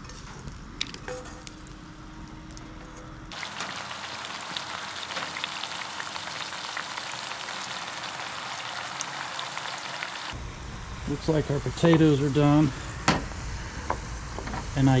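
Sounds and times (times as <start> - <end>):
food sizzling in hot oil: 3.3 - 10.4.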